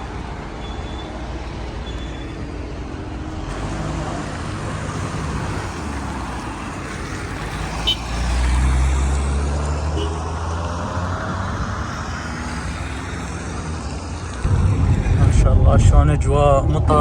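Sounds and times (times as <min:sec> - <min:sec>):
road noise: 0:00.0 - 0:17.0
vehicle engine drone: 0:00.0 - 0:17.0.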